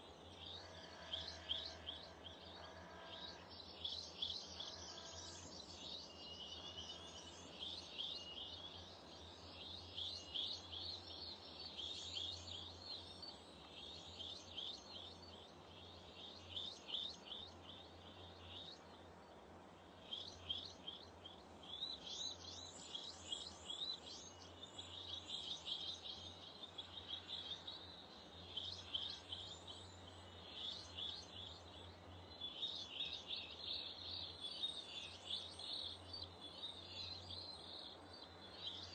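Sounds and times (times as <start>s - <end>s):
small birds chirping: 20.1s - 38.9s.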